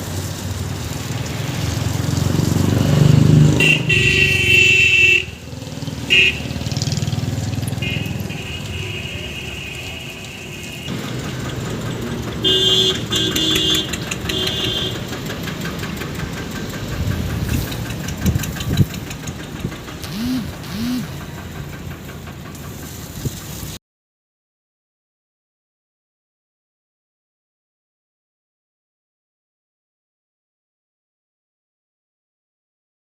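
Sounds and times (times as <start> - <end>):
engine running: 0.0 - 23.8
short horn honks: 3.6 - 5.4, 12.4 - 15.0, 20.0 - 21.0.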